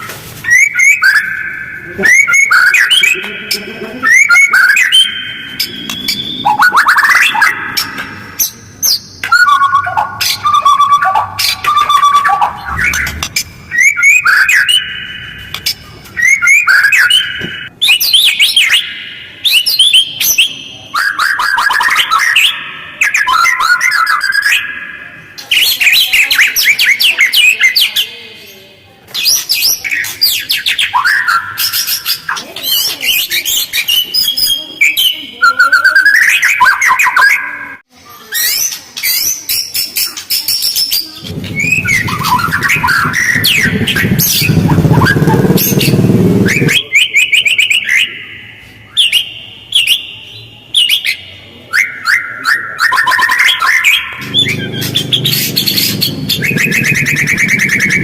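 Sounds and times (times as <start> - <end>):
bird singing chattering phrases: 0.6 - 28.2, 38.4 - 49.1, 52.9 - 58.0
low rumble: 12.2 - 13.9, 41.2 - 46.8, 54.2 - 58.0.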